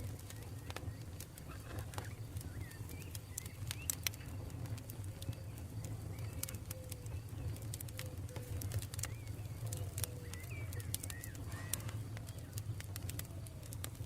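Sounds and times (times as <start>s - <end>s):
campfire crackling: 0.0s - 14.0s
faint bird calls: 0.1s - 14.0s.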